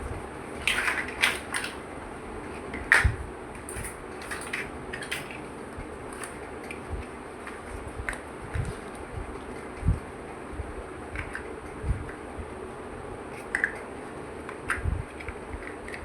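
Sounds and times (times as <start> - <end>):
plastic bricks clicking: 0.6 - 1.8.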